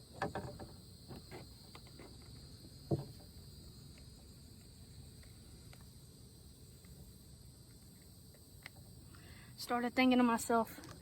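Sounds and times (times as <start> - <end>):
insects droning: 0.0 - 11.0
short knocks and rattles: 0.1 - 3.4.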